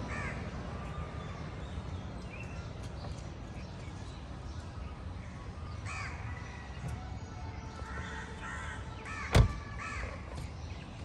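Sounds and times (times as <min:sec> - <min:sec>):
crows cawing: 0:00.1 - 0:00.4, 0:05.8 - 0:06.3, 0:07.9 - 0:10.3.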